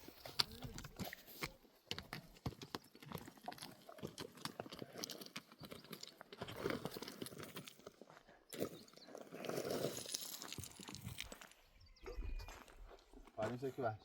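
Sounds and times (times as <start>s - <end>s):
hooves clip-clopping on stones: 0.0s - 14.0s.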